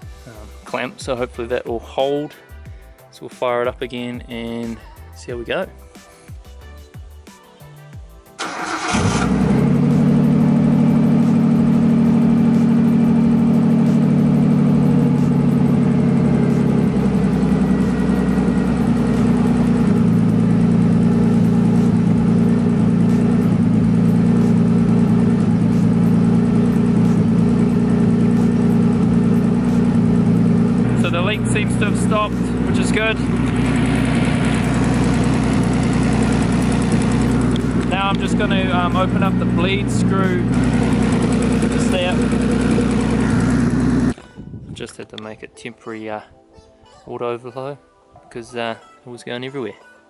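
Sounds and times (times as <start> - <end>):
car engine starter cranking: 8.4 - 9.8, 40.8 - 44.1
car engine idling: 8.4 - 44.2.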